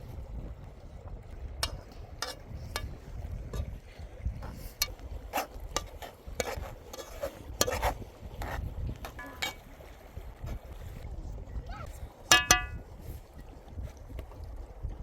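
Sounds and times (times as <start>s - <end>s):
wind rumble on microphone: 0.0s - 15.0s
utensil scraping cooking pot: 1.6s - 3.8s, 4.4s - 9.8s.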